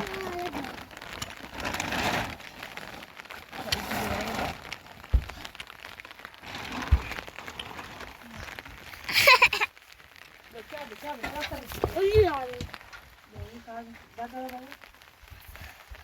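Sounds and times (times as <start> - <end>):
small clicks and clatter: 0.0 - 10.0
rain pattering: 0.0 - 16.0
dull thumps: 5.0 - 5.6.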